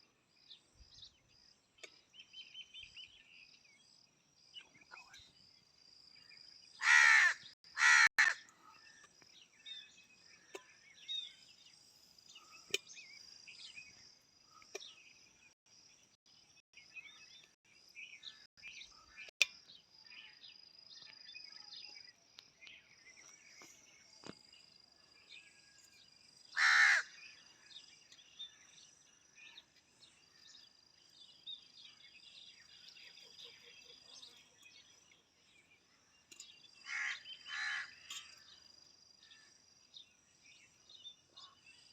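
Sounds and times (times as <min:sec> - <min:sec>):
crow cawing: 0:06.8 - 0:08.5, 0:26.6 - 0:27.2, 0:36.8 - 0:38.0.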